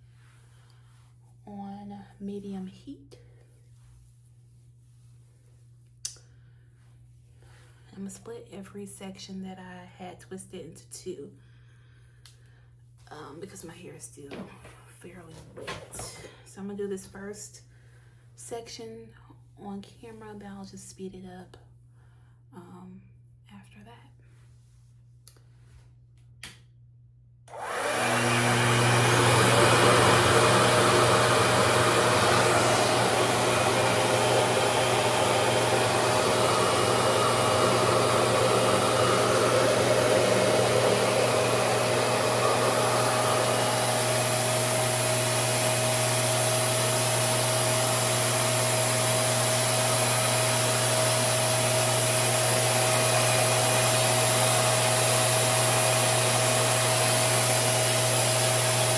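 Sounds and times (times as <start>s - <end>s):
blow dryer running: 15.3s - 16.4s, 27.5s - 58.9s.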